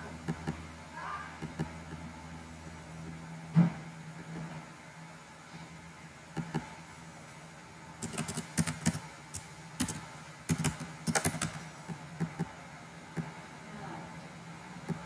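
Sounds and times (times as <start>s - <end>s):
faint steady hum: 0.0s - 15.0s
computer keyboard typing: 8.0s - 11.6s.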